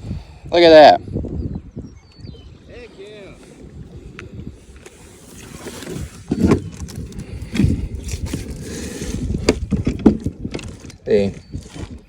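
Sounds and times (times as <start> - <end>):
knocking and scraping on kayak: 3.2 - 12.0.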